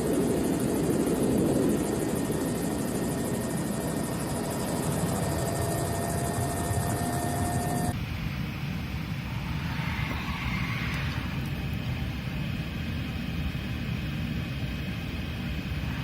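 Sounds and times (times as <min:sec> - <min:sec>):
helicopter rotor chopping: 0:00.0 - 0:08.0.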